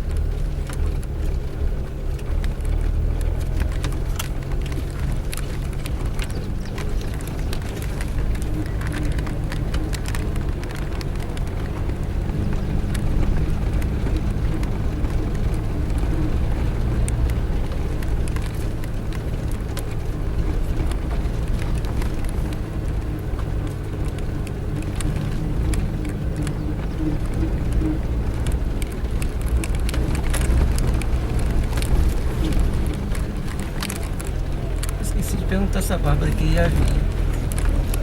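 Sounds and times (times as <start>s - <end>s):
car engine drone: 0.0s - 38.0s.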